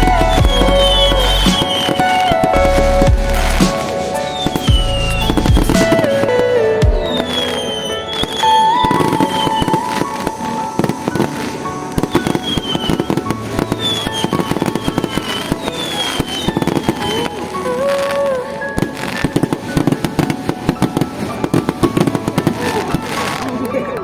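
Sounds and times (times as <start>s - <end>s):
fireworks whistles: 0.0s - 23.8s
fireworks bangs and crackles: 0.0s - 24.0s
music: 0.0s - 24.0s.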